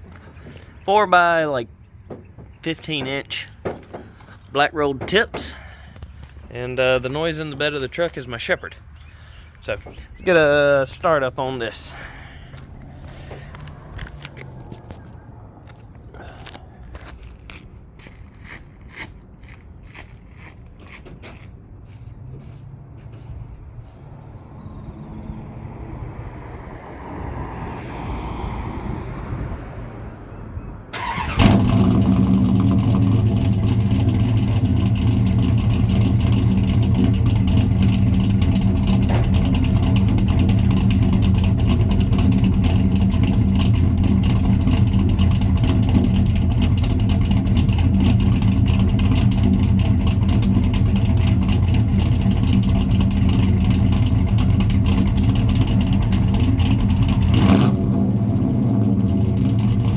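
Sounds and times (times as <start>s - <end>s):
truck engine starting and idling: 0.0s - 17.9s, 30.9s - 59.9s.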